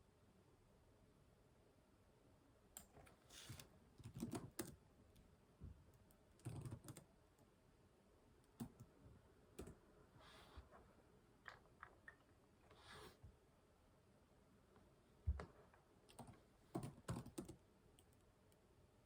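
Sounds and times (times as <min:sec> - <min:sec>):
computer keyboard typing: 0:04.0 - 0:04.8, 0:06.4 - 0:07.1, 0:08.6 - 0:08.9, 0:16.1 - 0:18.2.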